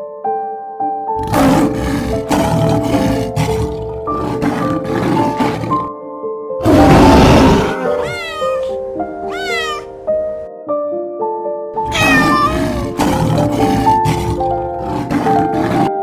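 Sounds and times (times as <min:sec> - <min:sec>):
melodic background music: 0:00.0 - 0:16.0
lion roar: 0:01.2 - 0:05.9, 0:06.6 - 0:08.7, 0:11.8 - 0:16.0
kitten meows: 0:07.7 - 0:10.0, 0:11.9 - 0:12.9.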